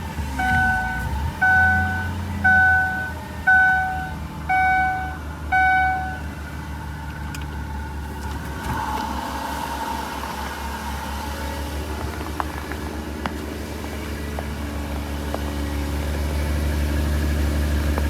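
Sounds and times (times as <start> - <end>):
engine hum: 0.0 - 18.0
car warning chime: 0.4 - 6.4.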